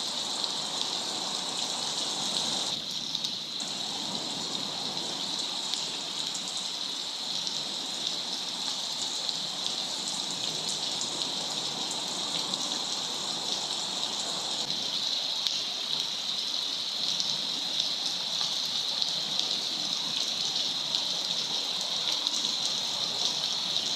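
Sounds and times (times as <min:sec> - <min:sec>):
steady rain falling: 0:00.0 - 0:23.9.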